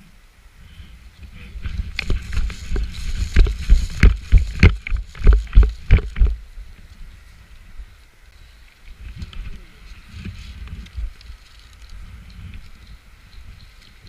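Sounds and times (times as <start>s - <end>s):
heavy thumps and sharp knocks: 1.9s - 6.4s.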